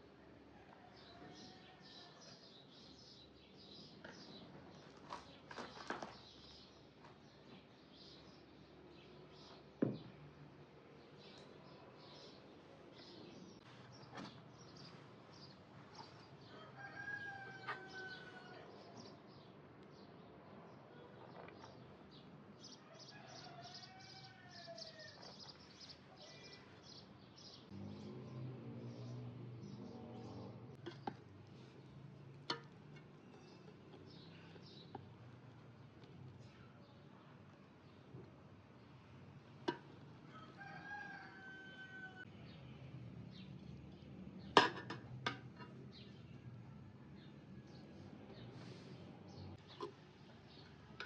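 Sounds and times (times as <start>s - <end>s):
distant rooster crowing: 0.4s - 2.5s, 16.4s - 19.0s, 22.7s - 25.5s, 40.2s - 42.3s.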